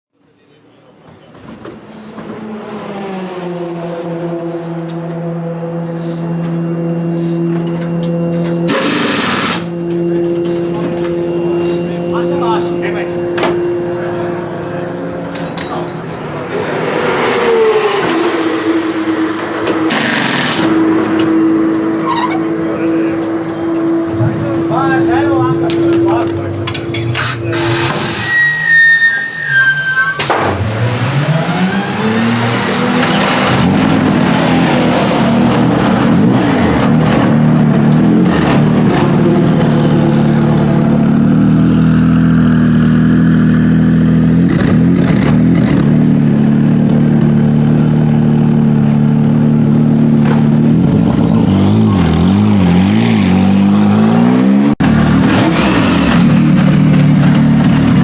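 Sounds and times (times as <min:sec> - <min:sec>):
race car engine running: 0:02.2 - 0:28.0, 0:30.4 - 0:58.0
high falling whine: 0:08.7 - 0:14.0, 0:19.9 - 0:21.9.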